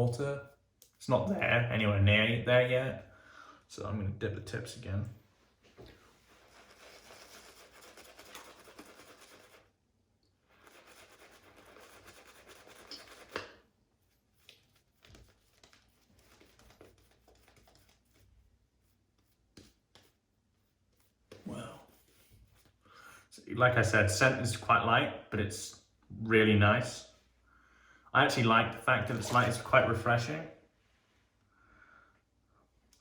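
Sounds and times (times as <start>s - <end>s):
shaving brush swishing lather: 6.2s - 9.7s, 10.5s - 22.8s, 29.0s - 29.8s.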